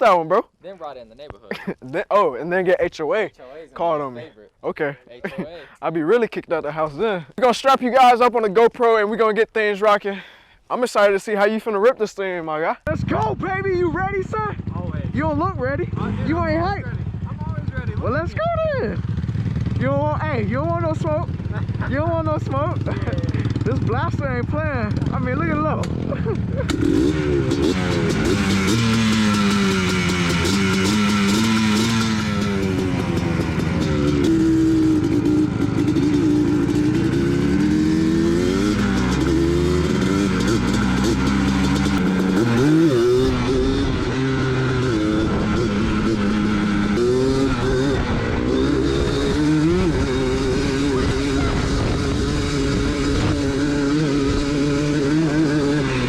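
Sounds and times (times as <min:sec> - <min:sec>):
small engine revving: 0:26.6 - 0:56.0.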